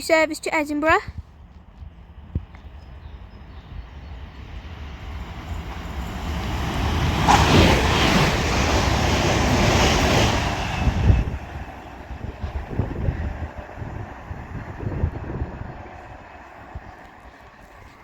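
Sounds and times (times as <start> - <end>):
train passing at speed: 0.1 - 18.0.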